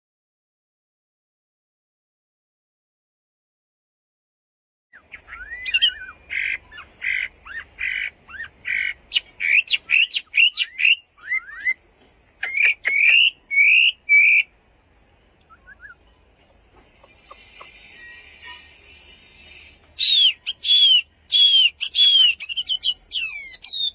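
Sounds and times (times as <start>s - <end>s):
bird singing whistled notes: 4.9s - 11.8s, 12.4s - 14.6s, 15.2s - 23.9s.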